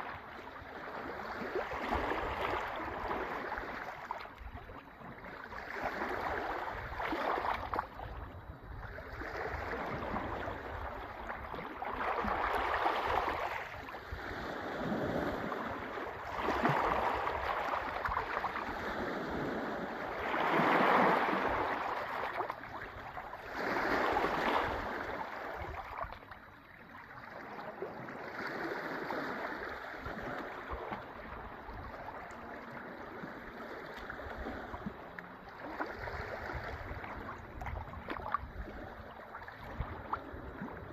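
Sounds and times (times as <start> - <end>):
sea waves breaking: 0.0 - 40.9.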